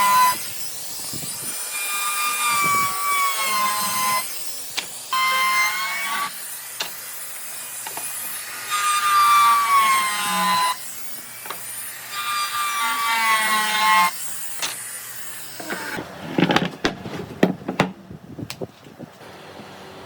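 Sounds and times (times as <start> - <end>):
power tool cutting wood: 0.0 - 16.0.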